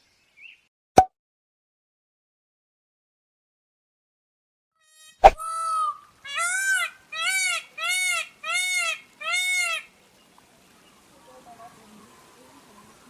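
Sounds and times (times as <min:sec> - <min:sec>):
bird calling: 0:05.2 - 0:09.9.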